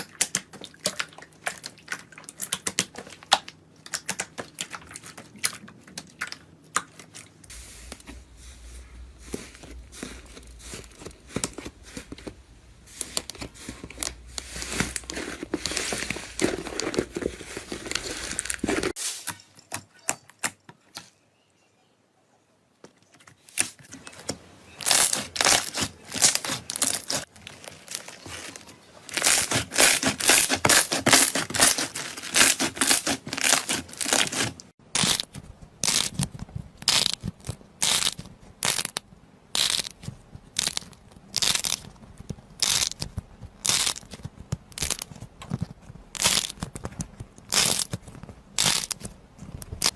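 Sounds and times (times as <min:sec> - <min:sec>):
crunchy material crushed by hand: 0:09.1 - 0:19.1, 0:24.8 - 0:39.0, 0:39.6 - 0:49.9.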